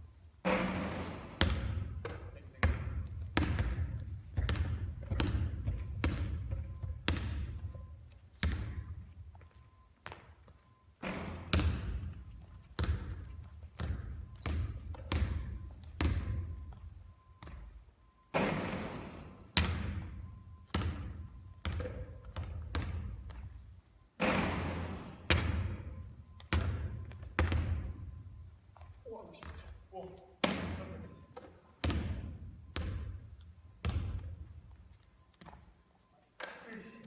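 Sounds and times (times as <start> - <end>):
basketball striking rim: 0.4 - 7.6, 11.0 - 12.2, 13.8 - 16.6, 18.3 - 23.2, 24.2 - 28.0, 30.4 - 33.2, 33.8 - 34.3
basketball bouncing on hard court: 0.4 - 17.7, 18.3 - 23.6, 24.2 - 28.2, 28.8 - 29.8, 30.4 - 34.5.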